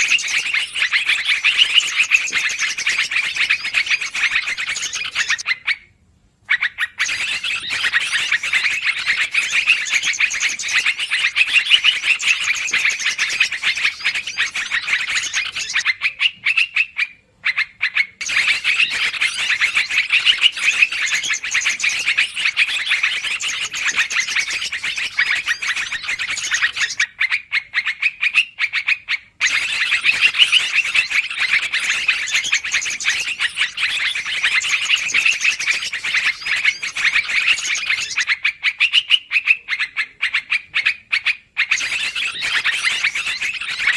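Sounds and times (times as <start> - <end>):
bulbuls chattering rapidly: 0.0 - 5.4, 7.0 - 16.2, 18.2 - 27.0, 29.4 - 38.4, 41.6 - 43.9.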